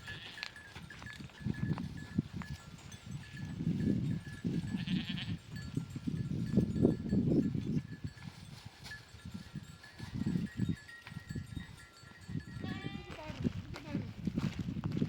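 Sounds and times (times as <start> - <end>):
sheep and goats bleating: 0.0 - 1.2, 2.8 - 3.8, 4.4 - 5.8, 12.5 - 14.1
animal bells clinking: 0.0 - 14.0.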